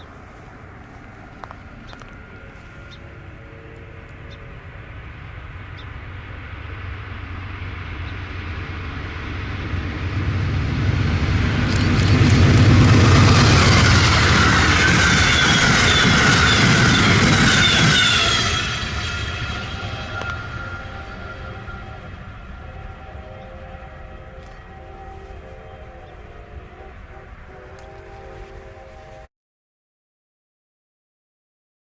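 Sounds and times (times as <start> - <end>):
train rumble and rail noise: 0.0 - 29.3
rail clicks: 11.5 - 22.0
high wavering tone: 11.7 - 29.3.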